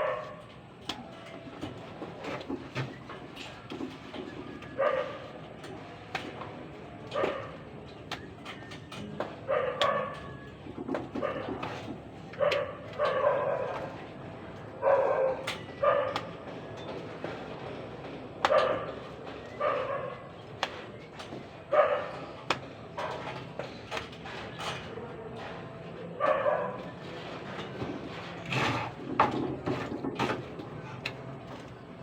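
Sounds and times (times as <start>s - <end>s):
dog barking: 0.0s - 0.4s, 4.8s - 5.2s, 7.1s - 7.6s, 9.5s - 10.3s, 12.4s - 13.9s, 14.8s - 16.3s, 19.6s - 20.2s, 21.7s - 22.2s, 26.2s - 26.8s.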